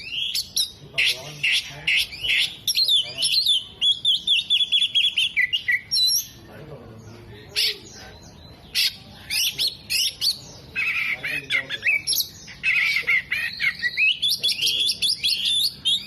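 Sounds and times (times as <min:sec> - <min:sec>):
bird singing with mimicked calls: 0:00.0 - 0:16.0.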